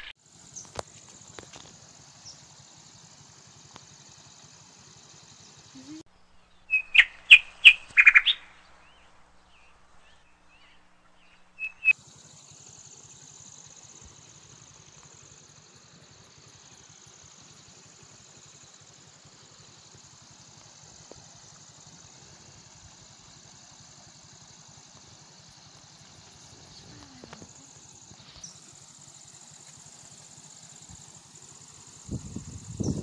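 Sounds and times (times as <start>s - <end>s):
bird calling sharp notes: 6.7s - 8.5s
high-pitched hiss: 11.8s - 33.0s.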